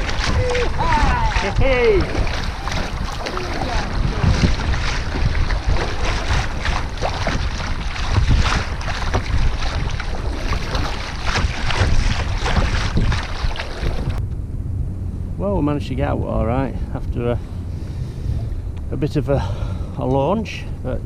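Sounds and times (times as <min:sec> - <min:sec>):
sea noise: 0:00.0 - 0:14.2
water splashing: 0:00.0 - 0:14.2
wind buffeting microphone: 0:00.0 - 0:21.0.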